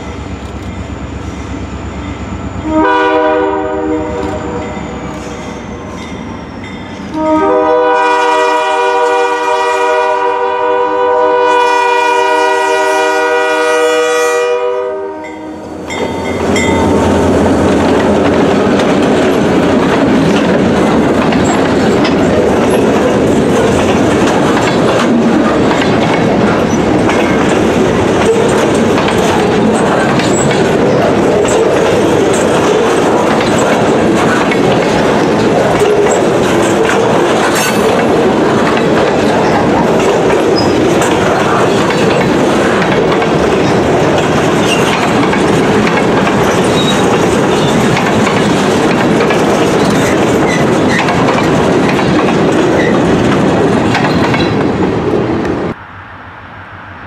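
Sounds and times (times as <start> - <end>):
freight train passing: 0.0 - 57.0
locomotive horn blast: 2.6 - 5.3, 7.1 - 17.4
wheels clicking over rail joints: 15.9 - 55.6.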